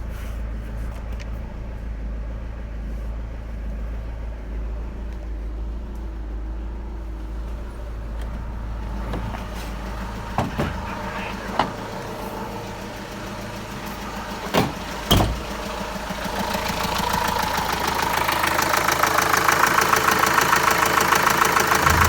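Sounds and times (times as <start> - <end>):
diesel engine clattering: 0.0 - 22.0
short thumps: 10.3 - 11.9.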